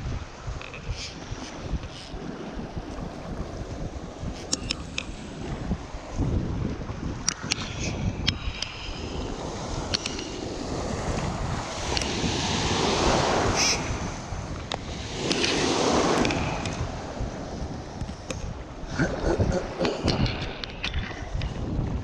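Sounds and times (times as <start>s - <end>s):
wind on microphone: 0.0s - 22.0s
rushes of noise: 7.3s - 22.0s
faint clicks: 9.9s - 10.3s.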